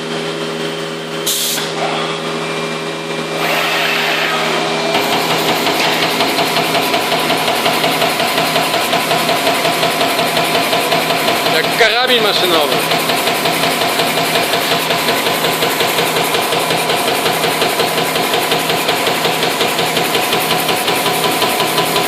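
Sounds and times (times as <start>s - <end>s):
punch press motor hum: 0.0s - 22.0s.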